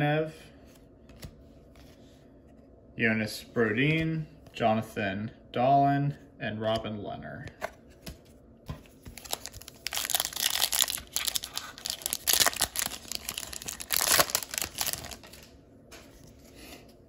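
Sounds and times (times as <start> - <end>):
plastic wrapper tearing and crinkling: 9.1 - 15.5.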